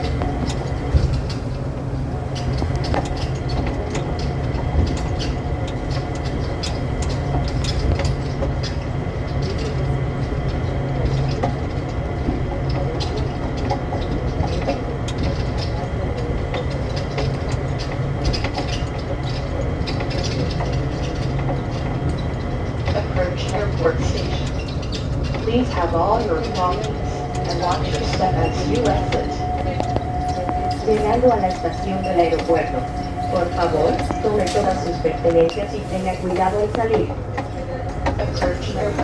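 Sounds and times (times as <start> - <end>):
rattles and clicks: 0.0 - 39.0
train rumbling: 0.0 - 39.0
faint high whine: 25.4 - 37.0.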